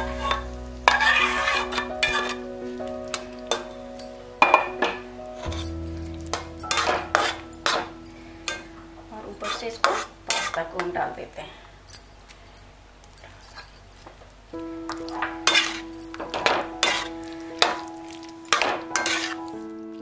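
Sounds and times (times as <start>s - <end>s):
metal spatula scraping a pan: 0.0s - 2.5s, 5.4s - 8.7s, 9.4s - 10.8s, 15.1s - 17.9s, 18.5s - 19.5s
background music: 0.0s - 10.7s, 14.5s - 20.0s.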